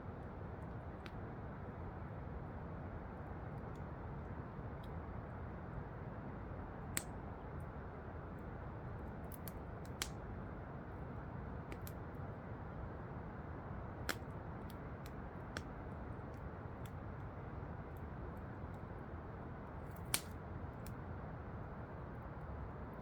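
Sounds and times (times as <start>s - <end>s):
wood fire crackling and popping: 6.9s - 7.2s, 9.3s - 10.3s, 13.9s - 18.1s, 19.7s - 21.1s.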